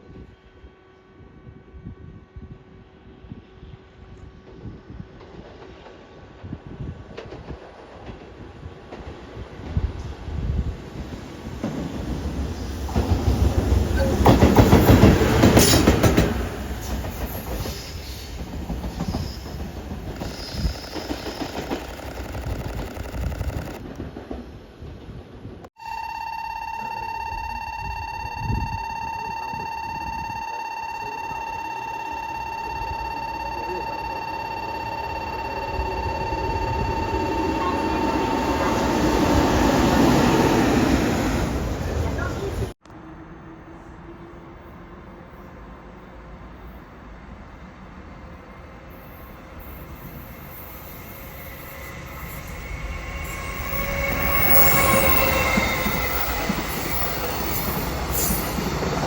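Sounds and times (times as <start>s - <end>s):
locomotive wheels rumbling on rails: 4.4s - 25.6s, 31.0s - 42.7s, 51.3s - 59.0s
locomotive wheels clattering over rail joints: 11.6s - 25.6s
steady high tone: 20.2s - 23.8s, 25.8s - 41.5s.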